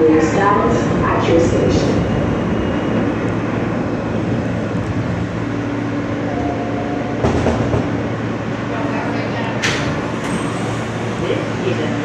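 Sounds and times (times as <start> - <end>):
train wheels on rails: 4.4 - 12.0.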